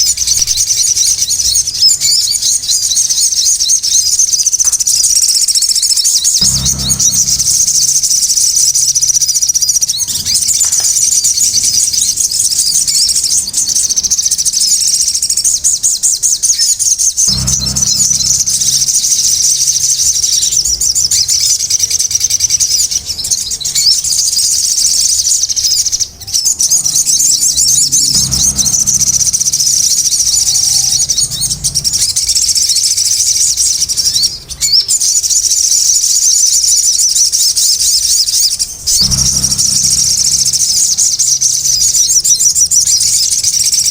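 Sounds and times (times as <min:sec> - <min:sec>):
songbird high-pitched chatter: 0:00.0 - 0:43.9
low rumble: 0:06.4 - 0:09.3, 0:17.3 - 0:21.0, 0:27.3 - 0:34.3, 0:38.7 - 0:42.3.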